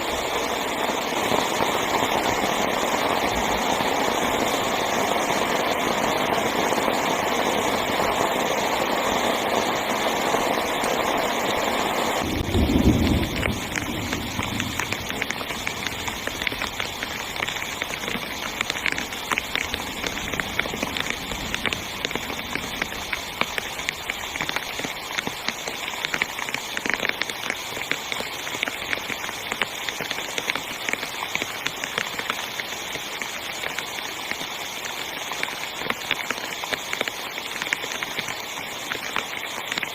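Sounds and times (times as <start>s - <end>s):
heavy rain on a tent: 0.0s - 39.9s
rain drops pattering on fabric: 0.0s - 39.9s.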